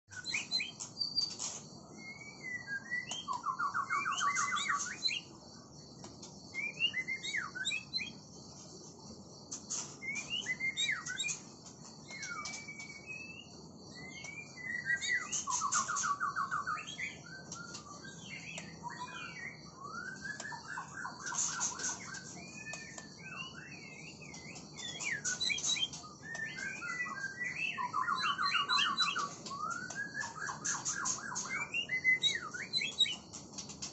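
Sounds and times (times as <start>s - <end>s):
bird singing whistled phrases: 0.1s - 0.8s, 2.0s - 5.3s, 6.5s - 8.2s, 10.0s - 11.4s, 12.1s - 33.2s.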